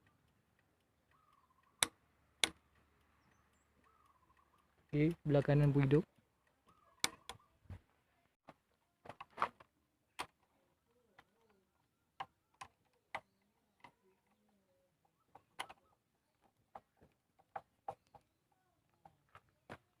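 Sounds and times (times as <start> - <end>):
handlebar switch clicks: 1.1 - 2.6.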